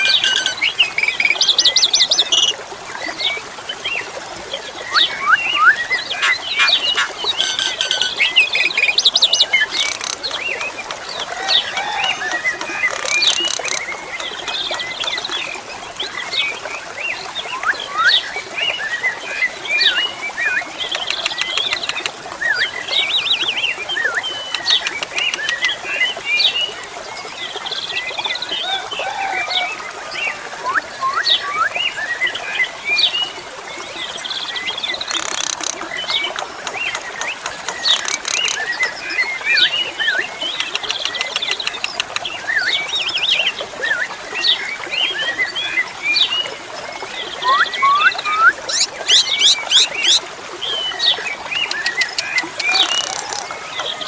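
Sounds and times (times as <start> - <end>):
starling singing: 4.9 - 8.4.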